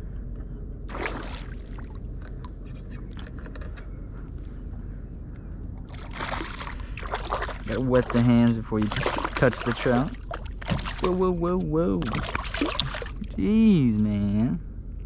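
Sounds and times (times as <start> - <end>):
steady low rumble: 0.0 - 15.0
water splashing: 0.9 - 2.0, 5.9 - 13.4.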